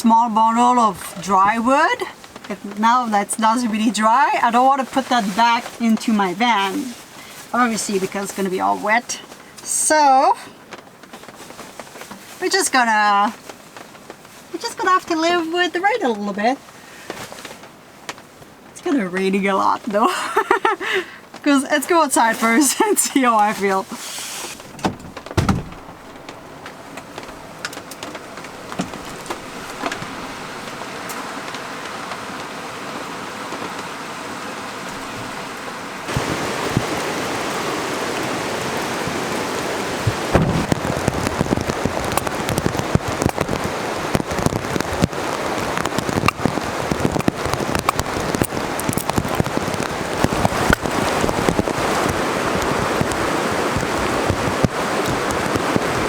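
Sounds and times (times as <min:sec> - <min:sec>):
heavy rain falling: 0:00.0 - 0:56.0
single knock: 0:40.3 - 0:40.8.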